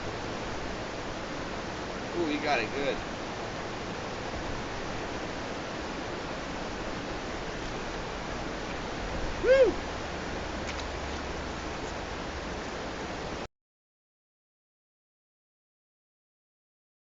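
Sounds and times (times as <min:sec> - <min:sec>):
river rushing: 0:00.0 - 0:13.5
rising and falling call: 0:09.4 - 0:10.0.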